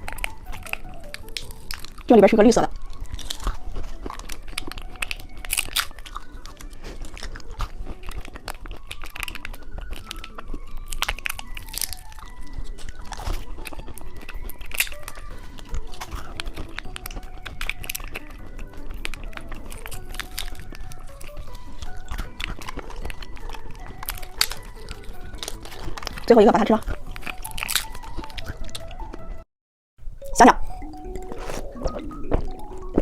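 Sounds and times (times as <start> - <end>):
faint background music: 0.0 - 29.4, 30.1 - 33.0
crunching hard candies: 2.7 - 29.1.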